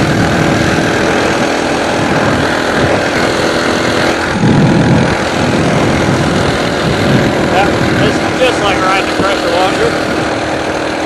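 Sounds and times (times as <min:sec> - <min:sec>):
small motorbike engine running: 0:00.0 - 0:11.0
wind rumble on microphone: 0:00.0 - 0:11.0.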